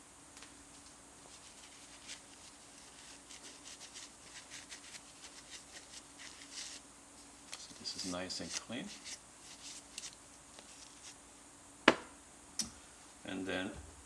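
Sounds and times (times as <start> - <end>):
towel rubbing and rustling: 1.2 - 11.2.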